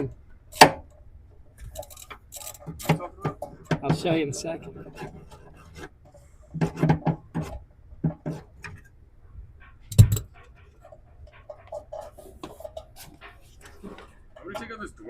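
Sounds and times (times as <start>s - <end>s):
car body parts clunking: 0.0s - 9.0s
hand tools knocking: 2.5s - 5.2s.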